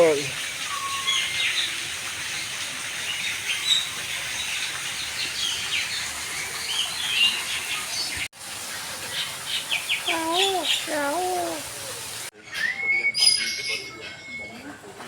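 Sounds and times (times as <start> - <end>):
birds chirping and calling: 9.0 - 12.3.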